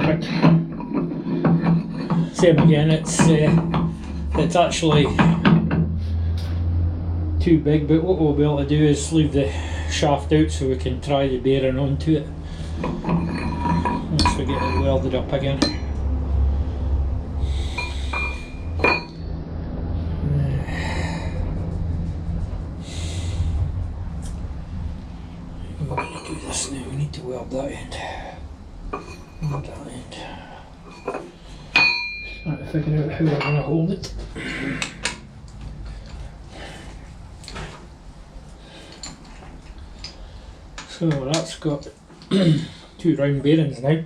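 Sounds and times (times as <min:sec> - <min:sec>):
tools clicking and knocking: 0:00.0 - 0:06.0
metal scraping: 0:00.0 - 0:07.2, 0:08.8 - 0:33.8
low steady hum: 0:00.0 - 0:44.0
sharp metallic clink: 0:31.8 - 0:32.6.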